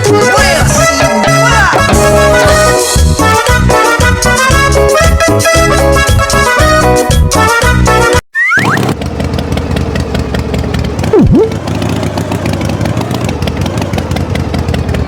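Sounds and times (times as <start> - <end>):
short falling whistle: 8.3 - 8.8
engine running with fast pulse: 8.5 - 15.0
loud swooping tone: 11.1 - 11.6.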